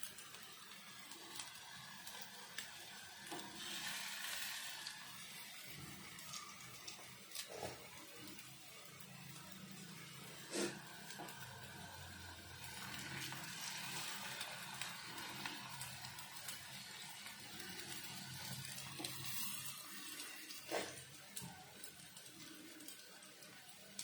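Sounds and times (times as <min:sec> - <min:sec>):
food sizzling in oil: 0:00.0 - 0:24.0.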